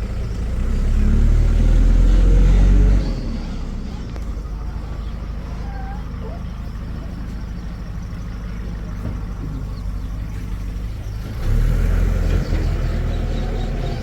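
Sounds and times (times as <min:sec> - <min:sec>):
heavy diesel engine revving: 0:00.0 - 0:14.0.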